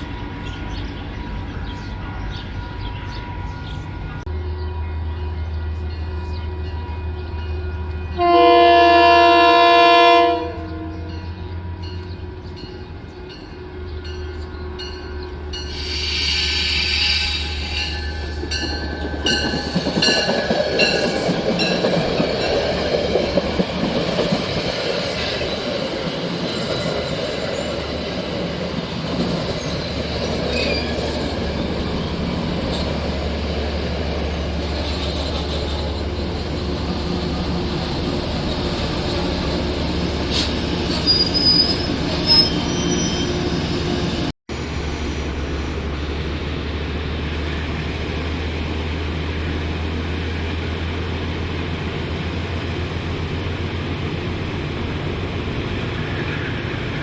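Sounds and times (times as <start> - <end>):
train rumbling on rails: 0.0 - 57.0
train wheels squealing: 13.3 - 22.9, 29.2 - 33.2, 34.3 - 44.3.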